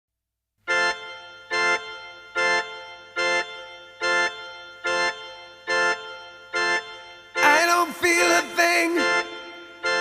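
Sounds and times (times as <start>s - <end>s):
organ-like keyboard chords: 0.6s - 10.0s.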